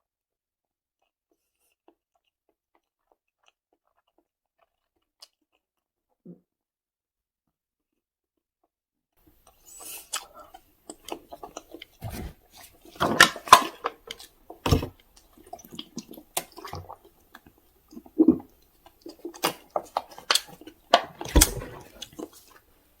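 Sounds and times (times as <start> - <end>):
knocks and thumps: 12.0 - 13.2.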